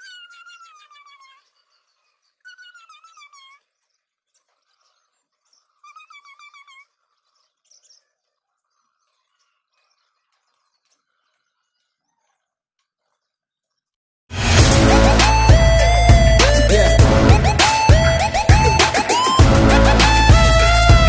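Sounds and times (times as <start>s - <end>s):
small bird chirping: 0.0s - 14.0s.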